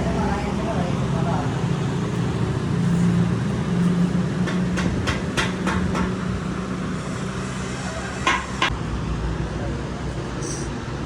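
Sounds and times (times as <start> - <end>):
low mechanical hum: 0.0 - 11.0
sharp knocks: 4.4 - 6.2, 8.2 - 8.7.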